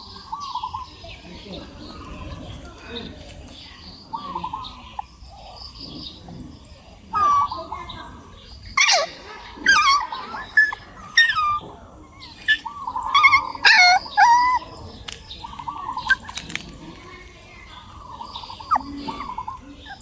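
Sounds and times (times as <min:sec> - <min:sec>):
puppy whining and yelping: 0:04.6 - 0:05.0, 0:06.1 - 0:07.5, 0:08.8 - 0:14.7, 0:15.5 - 0:16.4, 0:18.0 - 0:20.0.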